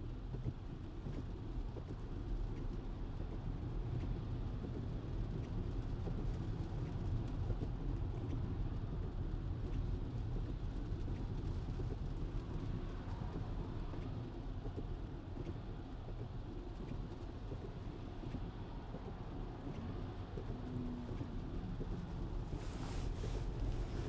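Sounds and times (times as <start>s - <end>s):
rain: 3.4s - 24.0s.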